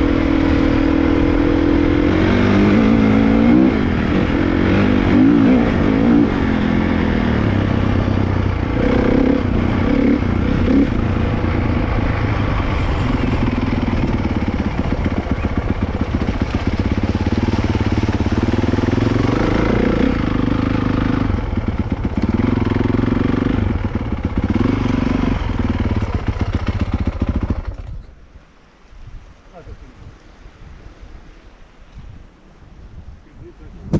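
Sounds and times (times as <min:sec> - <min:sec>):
dirt bike engine revving: 0:00.0 - 0:27.9.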